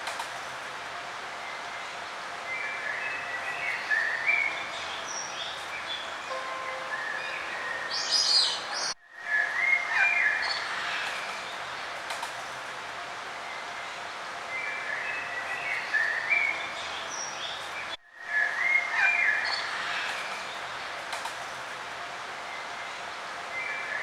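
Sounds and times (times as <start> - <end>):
steady outdoor hiss: 0.0 - 24.0
songbirds chirping and trilling: 1.2 - 11.9, 13.2 - 20.9.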